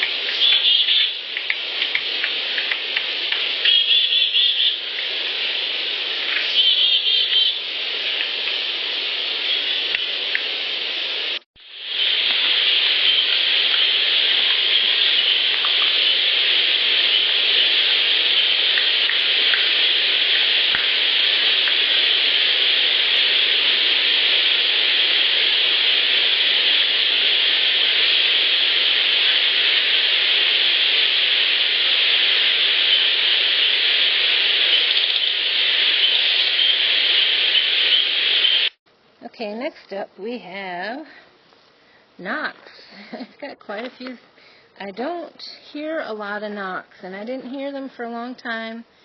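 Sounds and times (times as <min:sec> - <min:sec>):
faint ticks: 0:00.0 - 0:03.8
loud steady hiss: 0:00.0 - 0:49.0.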